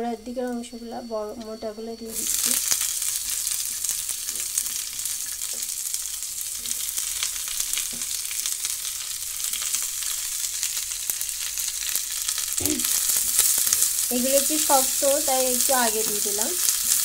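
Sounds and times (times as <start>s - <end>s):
vegetables sizzling in butter: 0.0s - 17.0s.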